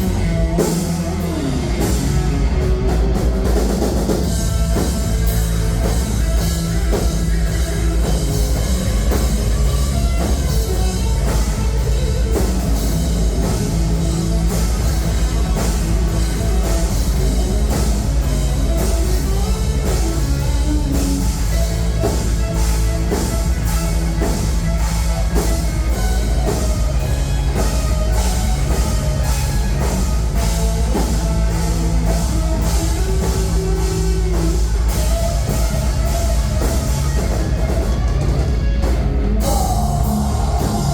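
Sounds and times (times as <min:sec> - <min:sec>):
bass guitar: 0:00.0 - 0:40.9
drum kit: 0:00.0 - 0:40.9
electric guitars: 0:00.0 - 0:40.9.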